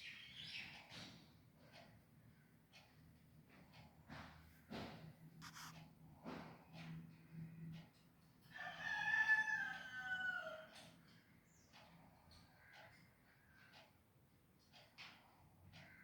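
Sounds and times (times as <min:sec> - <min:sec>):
faint clicks and scrapes: 0:02.7 - 0:08.5, 0:10.7 - 0:16.0.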